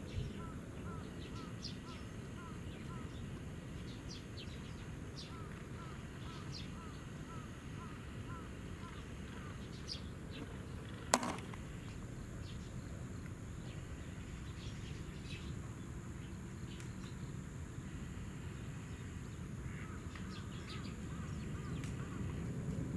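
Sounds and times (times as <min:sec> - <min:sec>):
sharp click: 0:11.2 - 0:11.6.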